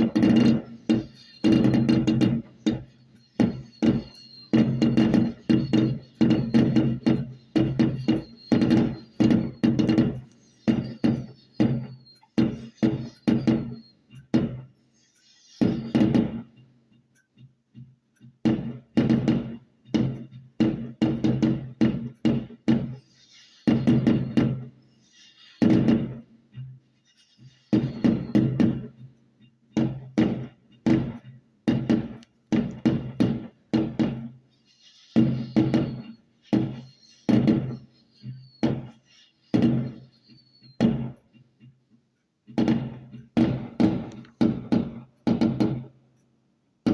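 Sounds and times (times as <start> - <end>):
falling firework whistle: 0.0 - 13.8, 29.8 - 41.3
fireworks bangs: 0.0 - 13.8, 14.4 - 14.7, 15.5 - 16.6, 18.4 - 26.3, 27.4 - 29.1, 29.8 - 41.4, 42.5 - 46.0.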